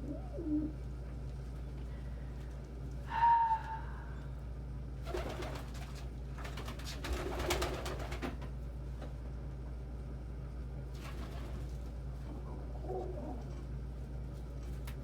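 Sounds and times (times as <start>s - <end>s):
pigeons cooing: 0.0s - 0.9s, 12.4s - 13.7s
steady low hum: 0.0s - 15.0s
pigeon high call: 3.1s - 4.2s
pigeons rustling and flapping: 5.0s - 8.6s, 10.9s - 12.0s.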